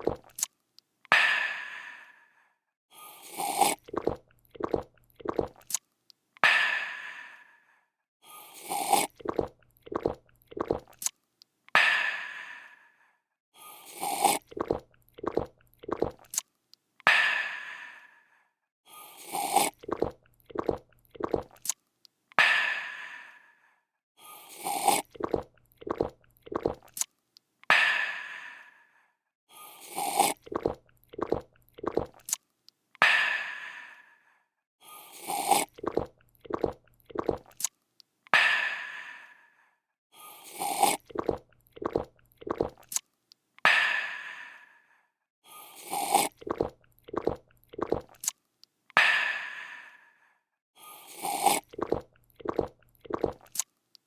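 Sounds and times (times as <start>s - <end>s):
drinking slurp and gulps: 0.0s - 0.5s, 3.0s - 5.8s, 8.3s - 11.2s, 13.7s - 16.5s, 19.0s - 21.8s, 24.3s - 27.1s, 29.6s - 32.4s, 34.9s - 38.4s, 40.2s - 43.7s, 45.6s - 48.4s, 50.9s - 54.0s.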